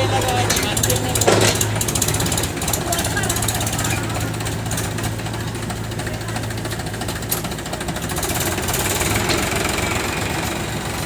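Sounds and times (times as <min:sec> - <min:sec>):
heavy diesel engine clattering: 0:00.0 - 0:11.0.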